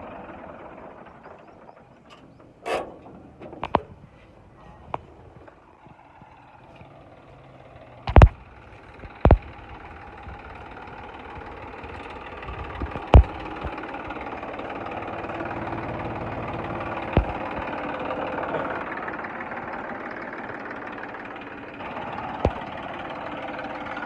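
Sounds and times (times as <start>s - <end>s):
tractor engine running: 0.0s - 24.0s
loud sharp knocks: 12.8s - 13.8s, 17.1s - 17.7s.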